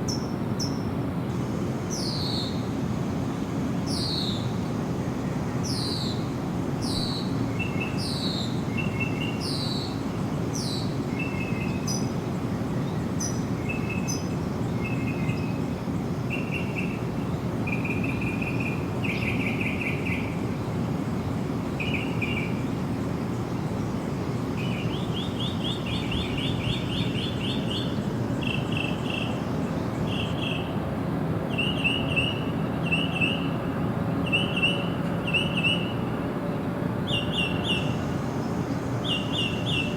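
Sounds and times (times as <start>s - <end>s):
steady low background noise: 0.0s - 39.9s
birds singing: 0.1s - 2.8s, 3.5s - 39.9s.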